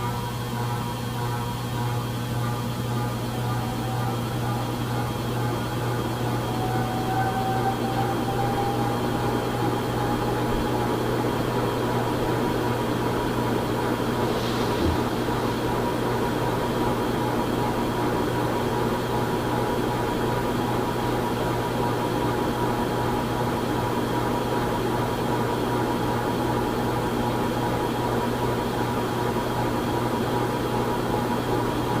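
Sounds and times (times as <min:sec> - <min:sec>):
ceiling fan humming: 0:00.0 - 0:32.0
fan whine: 0:00.0 - 0:32.0
moving air: 0:14.2 - 0:16.6.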